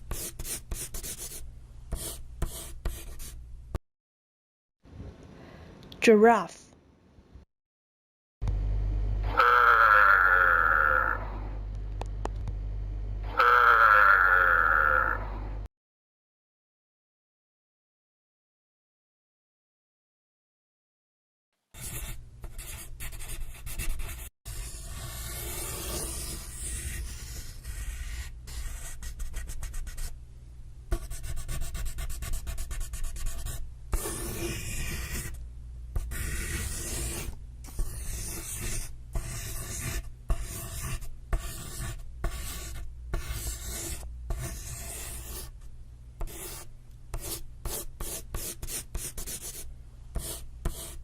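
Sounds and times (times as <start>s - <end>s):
steady low hum: 8.4s - 13.5s, 24.5s - 48.2s
scratchy rasping sounds: 21.8s - 30.0s, 31.0s - 35.4s, 36.0s - 45.6s.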